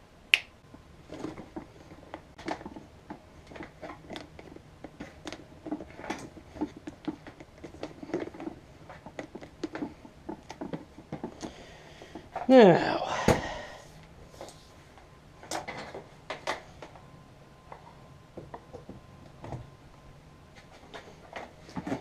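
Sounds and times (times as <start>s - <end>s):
plastic parts clicking and scraping: 1.1s - 12.5s.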